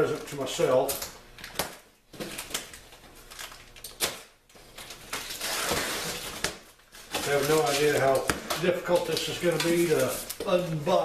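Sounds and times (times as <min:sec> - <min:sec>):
scraping rustle: 0:07.0 - 0:08.3.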